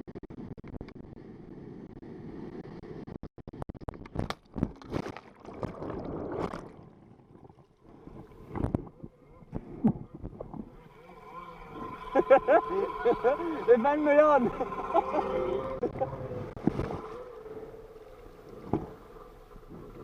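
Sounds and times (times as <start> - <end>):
water splashing: 4.2 - 9.1, 10.3 - 20.0.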